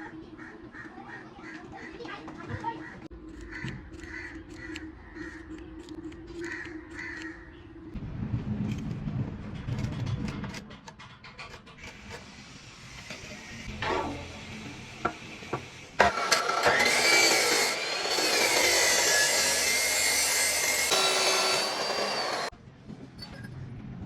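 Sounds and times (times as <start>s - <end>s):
rasping grinding noise: 15.4s - 22.5s
small electric motor whining: 16.0s - 22.5s.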